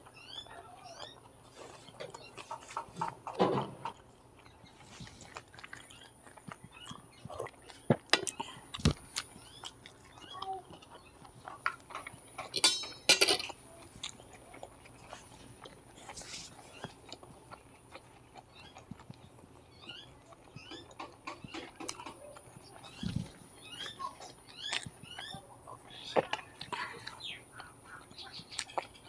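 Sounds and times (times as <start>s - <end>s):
mouth-closed chewing: 0.0s - 29.0s
fork clinking on steel plate: 12.6s - 13.5s.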